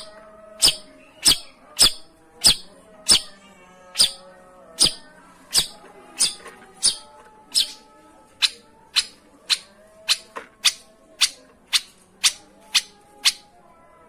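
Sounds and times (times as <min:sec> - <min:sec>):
bird giving scratchy calls: 0:05.5 - 0:07.8.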